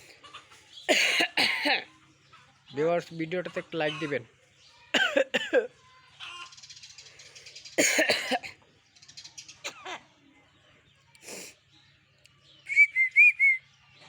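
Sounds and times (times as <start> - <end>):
myna rattling chatter: 5.9 - 8.0.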